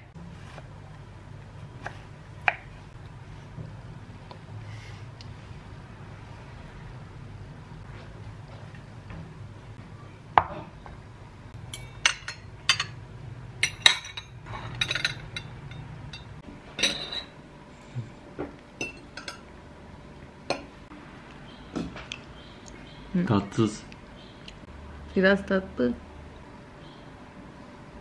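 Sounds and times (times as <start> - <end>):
cutlery and dishes clinking: 13.6 - 17.4.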